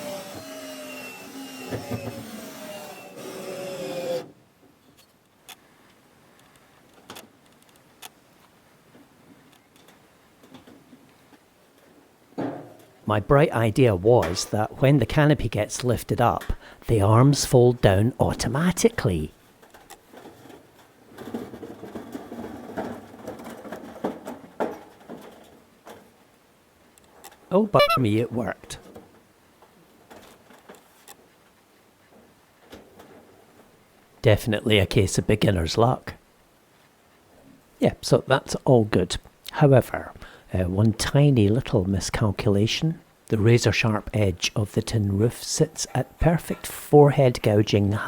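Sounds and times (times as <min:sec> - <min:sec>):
tin roof sheets rattling: 0:19.6 - 0:26.1.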